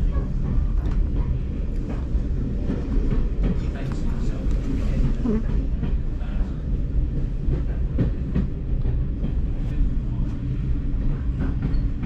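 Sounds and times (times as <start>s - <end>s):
train carriage rumbling on track: 0.0s - 12.0s.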